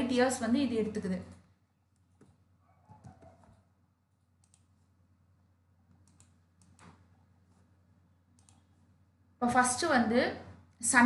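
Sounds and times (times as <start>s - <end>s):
faint clicks: 4.4s - 4.7s.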